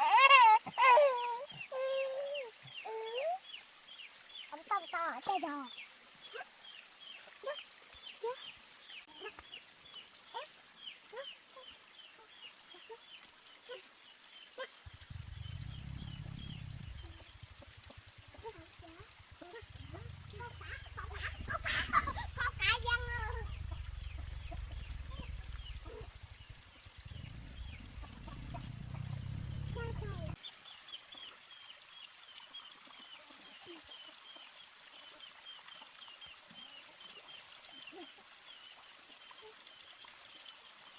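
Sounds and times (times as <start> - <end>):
faint high whine: 14.9 - 30.4
low rumble: 14.9 - 30.4
chickens clucking: 19.8 - 26.0.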